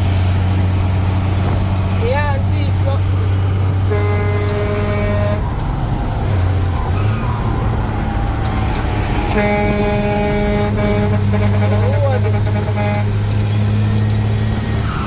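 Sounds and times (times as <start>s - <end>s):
truck engine running: 0.0s - 15.0s
vehicle horn: 3.8s - 5.5s, 9.2s - 13.6s.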